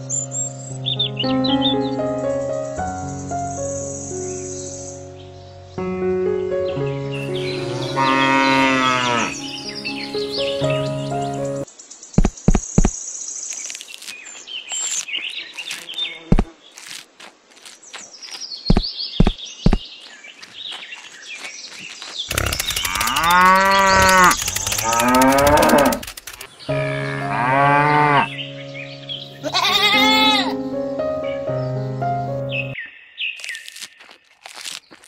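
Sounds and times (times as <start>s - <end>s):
background music: 0.0s - 11.7s, 26.5s - 32.8s
birds chirping: 6.7s - 17.0s, 17.6s - 35.0s
cow mooing: 7.6s - 9.4s, 22.3s - 26.0s, 26.7s - 28.4s
sharp clicks: 22.3s - 26.7s.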